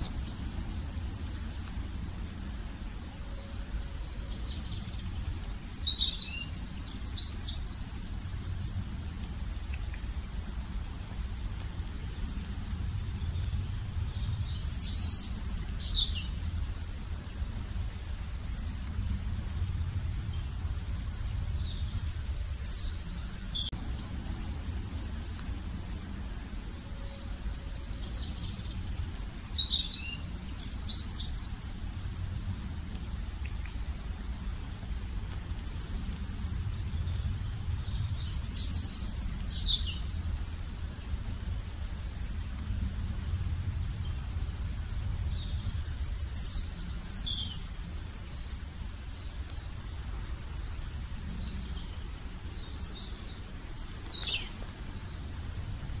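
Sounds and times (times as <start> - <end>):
low steady rumble: 0.0 - 56.0
wild birds singing: 0.0 - 56.0.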